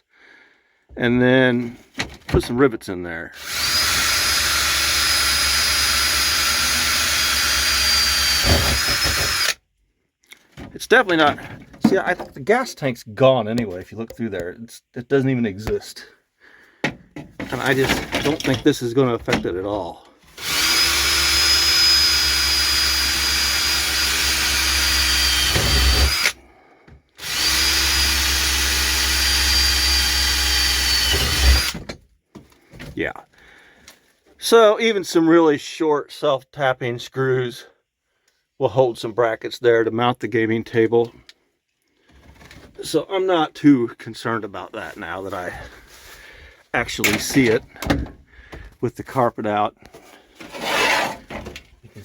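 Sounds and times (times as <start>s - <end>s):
power drill boring through metal: 3.4s - 9.6s, 20.3s - 26.4s, 27.2s - 31.9s.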